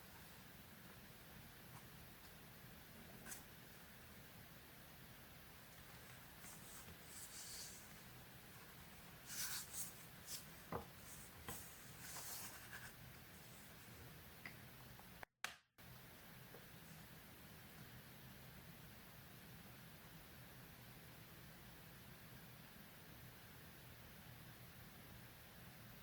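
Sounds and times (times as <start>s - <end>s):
paper rustling and scratching: 8.6s - 13.0s.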